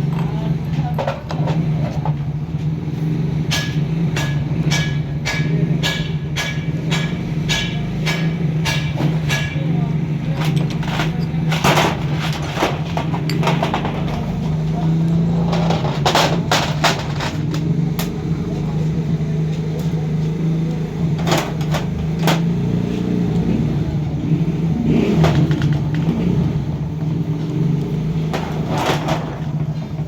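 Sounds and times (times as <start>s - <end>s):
knocks and clatter: 0.0s - 30.0s
hammer tapping on metal: 3.4s - 11.4s.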